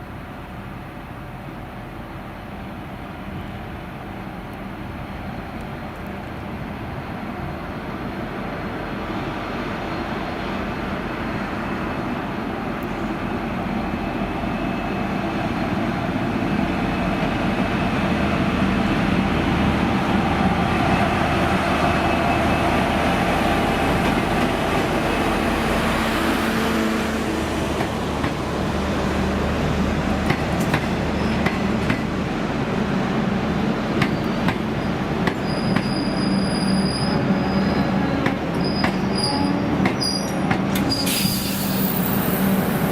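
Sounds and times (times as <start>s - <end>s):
diesel locomotive engine: 0.0s - 42.9s
train wheels clicking on rails: 27.7s - 28.5s, 30.0s - 32.2s, 33.9s - 36.2s, 38.2s - 42.9s.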